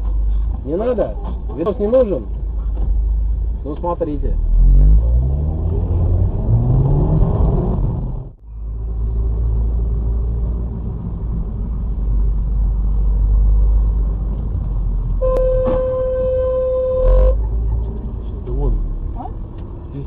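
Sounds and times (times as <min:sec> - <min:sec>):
car engine and road rumble: 0:00.0 - 0:20.0
car horn blast: 0:15.2 - 0:17.4.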